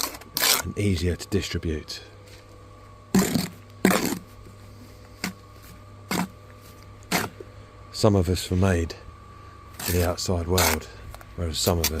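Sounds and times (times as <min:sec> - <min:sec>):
trowel scraping wet mortar: 0:00.0 - 0:00.7, 0:03.1 - 0:04.3, 0:06.1 - 0:06.4, 0:07.0 - 0:07.4, 0:09.8 - 0:10.9, 0:11.7 - 0:12.0
faint steady hum: 0:00.0 - 0:12.0.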